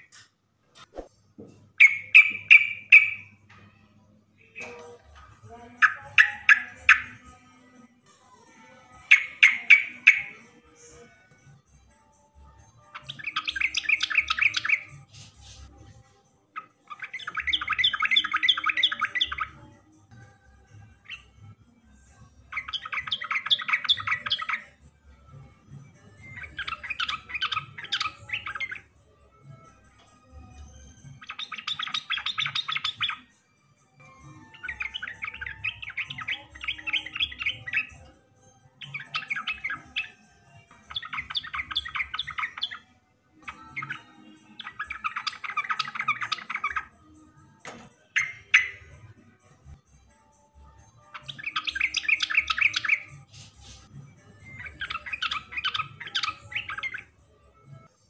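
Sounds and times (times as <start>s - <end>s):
bulbul singing: 1.8s - 7.8s, 8.4s - 11.3s, 12.7s - 15.7s, 16.6s - 24.9s, 25.5s - 49.2s, 50.3s - 57.9s.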